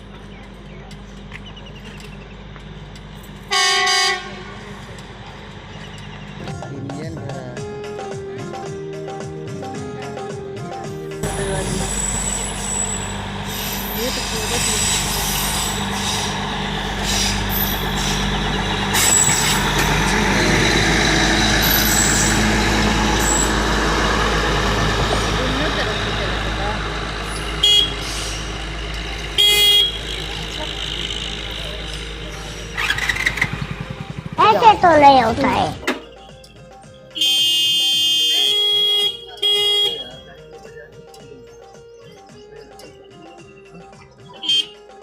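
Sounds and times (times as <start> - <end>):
track machine engine hum: 0.0 - 45.0
loud horn blast: 3.5 - 4.9, 11.2 - 34.4, 37.1 - 40.3, 44.4 - 45.0
short high squeaks: 11.8 - 20.0, 21.6 - 23.8.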